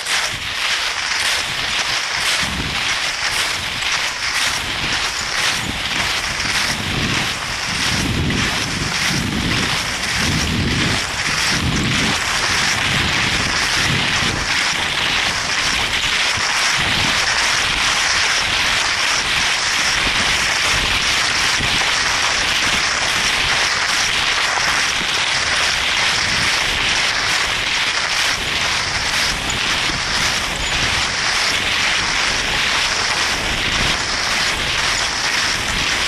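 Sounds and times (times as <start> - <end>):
skis hissing over snow: 0.0 - 36.0.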